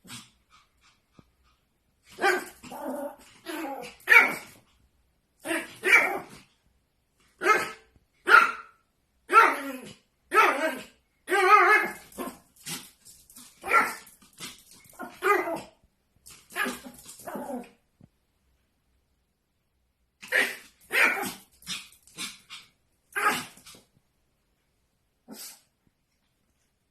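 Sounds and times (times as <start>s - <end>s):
small dog yapping: 2.1s - 4.6s, 5.4s - 6.4s, 7.4s - 17.8s, 20.2s - 23.8s.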